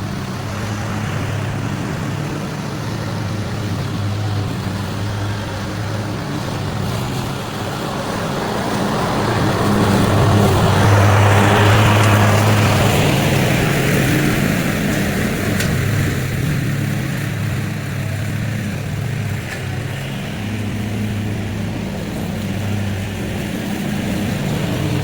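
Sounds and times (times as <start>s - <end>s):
small gasoline engine running: 0.0s - 25.0s.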